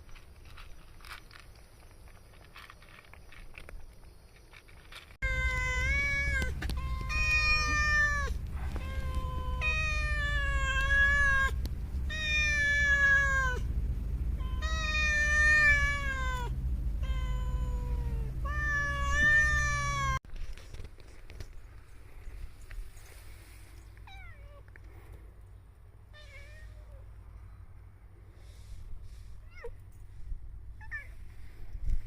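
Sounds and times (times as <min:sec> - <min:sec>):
cat meowing: 0:05.2 - 0:13.7, 0:14.4 - 0:20.2
steady low hum: 0:05.2 - 0:20.2.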